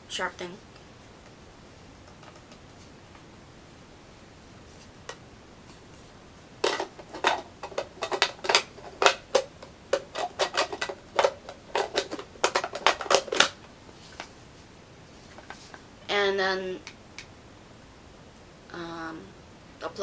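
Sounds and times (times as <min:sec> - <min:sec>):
packaging clicks and crackles: 0:06.6 - 0:13.6.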